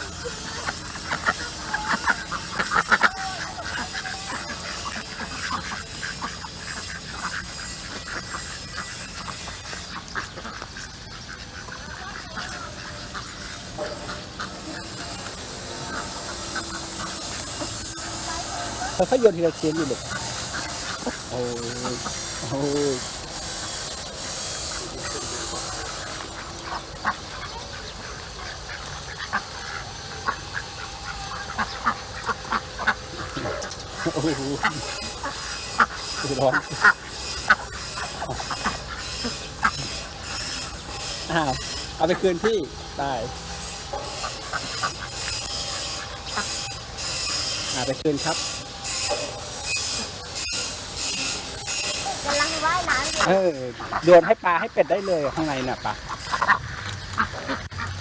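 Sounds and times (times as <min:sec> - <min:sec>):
ducks quacking: 0:00.0 - 0:58.0.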